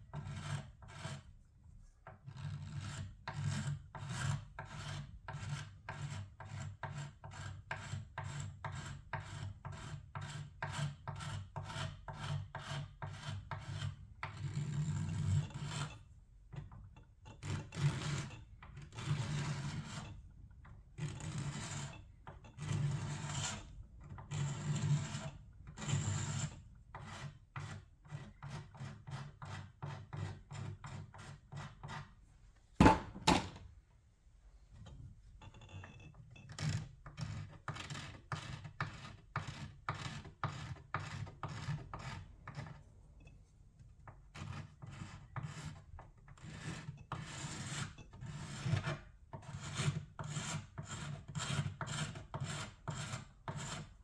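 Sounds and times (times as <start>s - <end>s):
sharp knock: 32.8s - 33.6s.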